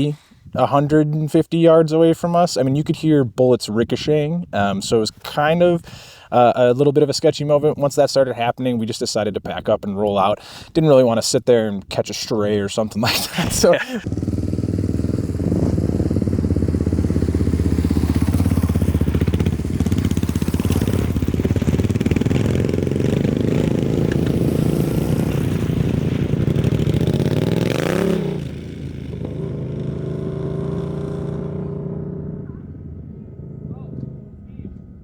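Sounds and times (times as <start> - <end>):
motorcycle engine running: 14.0 - 35.0.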